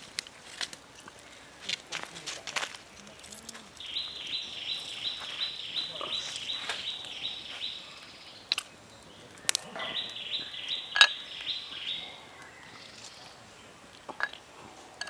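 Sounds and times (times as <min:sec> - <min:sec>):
bird chirping: 0:03.1 - 0:13.8.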